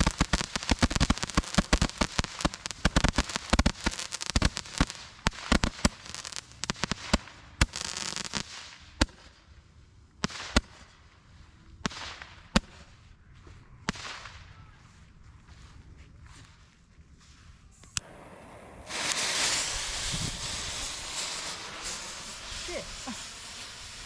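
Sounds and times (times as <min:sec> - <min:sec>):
fireworks popping and crackling: 0:00.0 - 0:09.4, 0:10.2 - 0:13.0, 0:13.8 - 0:14.6, 0:17.8 - 0:24.0.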